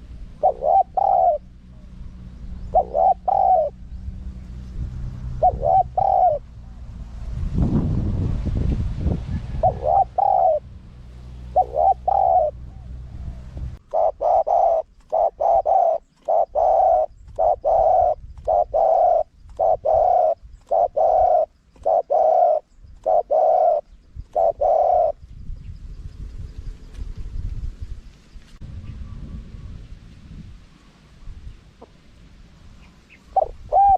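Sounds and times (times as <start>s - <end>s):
dove cooing: 0.0s - 4.0s, 5.3s - 6.8s, 9.5s - 10.7s, 11.3s - 25.2s, 32.8s - 33.9s
low rumble: 0.0s - 13.9s, 25.2s - 32.8s.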